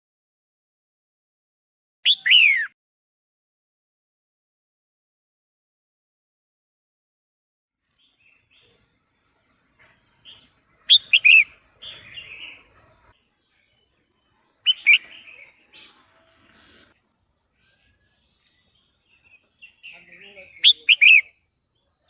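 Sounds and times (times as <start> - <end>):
bird chattering calls: 10.9 - 12.7, 14.6 - 16.9, 19.7 - 21.3.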